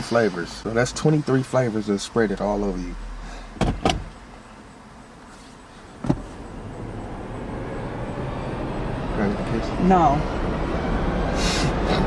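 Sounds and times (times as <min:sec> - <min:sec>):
low car rumble: 0:00.0 - 0:12.0
sharp knocks: 0:06.0 - 0:06.4.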